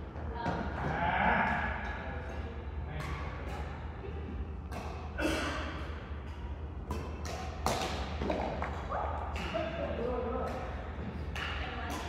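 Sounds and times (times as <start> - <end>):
racket striking shuttlecock: 6.2 - 8.7.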